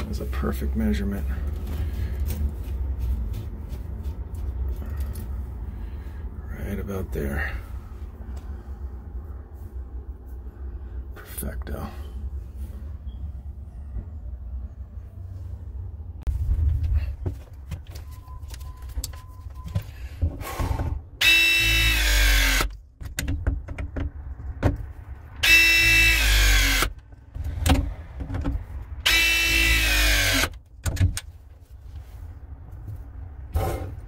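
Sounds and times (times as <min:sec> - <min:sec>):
press tool motor whine: 0:21.2 - 0:22.7, 0:25.4 - 0:26.9, 0:29.0 - 0:30.5.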